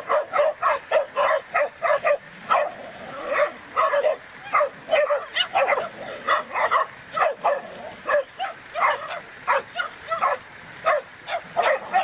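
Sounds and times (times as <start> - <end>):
dogs barking and yelping: 0.0 - 12.0.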